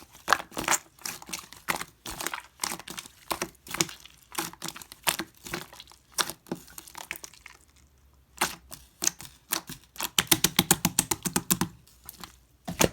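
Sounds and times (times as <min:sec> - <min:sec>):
slime clicking and popping: 0:09.5 - 0:11.8.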